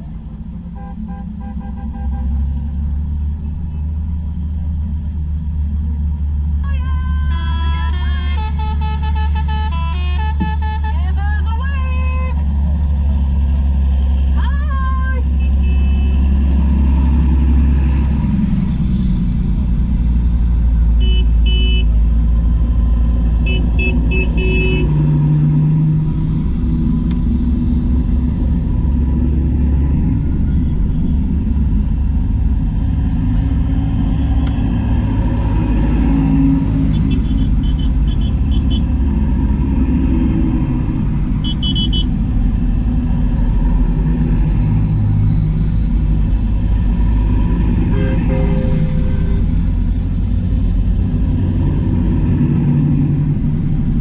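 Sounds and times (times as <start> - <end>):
tractor engines rumbling: 0.0 - 54.0
horn toots: 6.8 - 11.2, 21.0 - 22.0, 23.4 - 25.0, 36.9 - 38.9, 41.4 - 42.1, 47.8 - 50.1.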